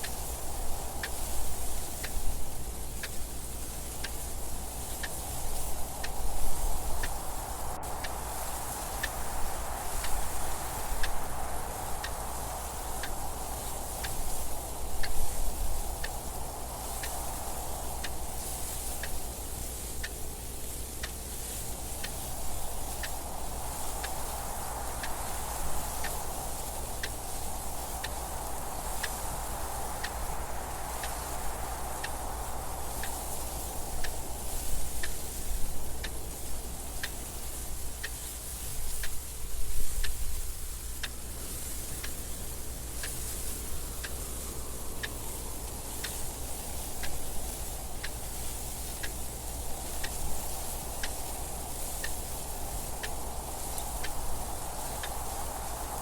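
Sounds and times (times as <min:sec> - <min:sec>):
wind gusting: 0:00.0 - 0:19.5, 0:21.2 - 0:56.0
clock ticking: 0:41.0 - 0:41.2, 0:43.0 - 0:55.5.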